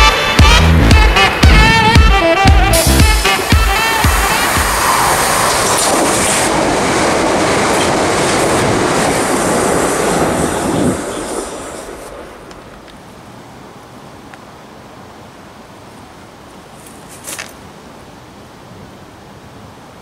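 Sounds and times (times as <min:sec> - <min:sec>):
electric train passing: 0:00.0 - 0:14.3.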